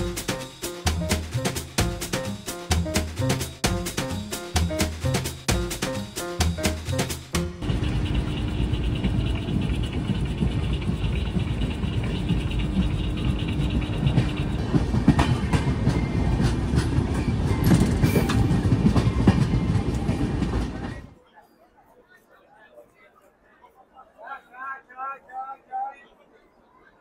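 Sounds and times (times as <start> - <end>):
train wheels rumbling on rails: 0.0 - 21.2
wheels clattering over rail joints: 6.5 - 21.0.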